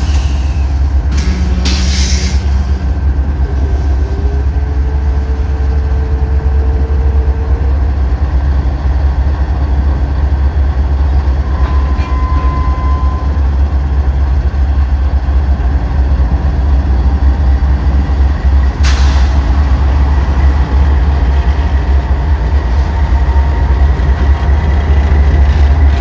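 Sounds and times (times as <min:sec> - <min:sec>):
sharp metal clank: 0:00.0 - 0:02.5
freight train rumbling past: 0:00.0 - 0:26.0.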